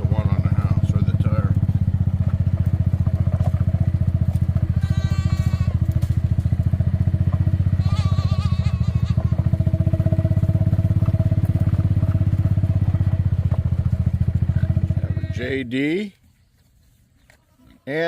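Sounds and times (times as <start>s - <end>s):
small engine idling: 0.0s - 15.7s
goat bleating: 4.4s - 6.2s, 7.6s - 9.6s, 14.5s - 15.7s.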